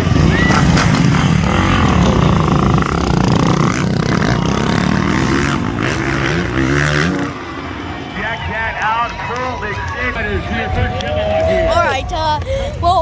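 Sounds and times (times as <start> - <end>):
motorcycle engine revving: 0.0 - 8.4.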